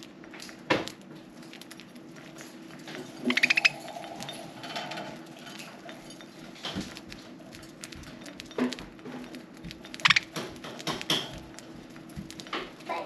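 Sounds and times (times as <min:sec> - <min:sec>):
budgies cracking millet seeds: 0:00.0 - 0:13.0.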